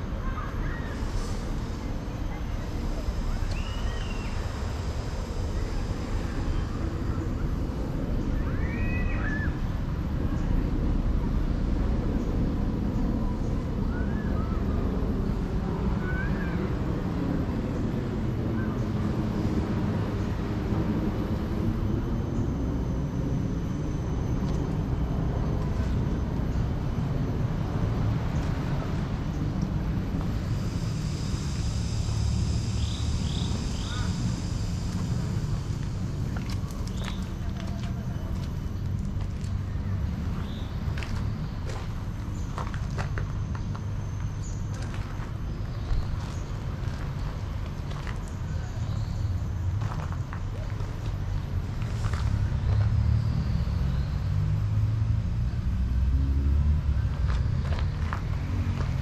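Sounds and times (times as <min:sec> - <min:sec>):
steady low rumble: 0:00.0 - 0:08.7, 0:09.5 - 0:59.0
high steady whine: 0:00.0 - 0:52.9.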